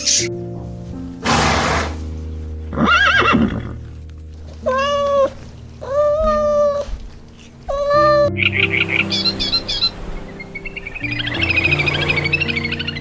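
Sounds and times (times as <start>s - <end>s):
soft background music: 0.0s - 13.0s
animal calls: 7.7s - 13.0s.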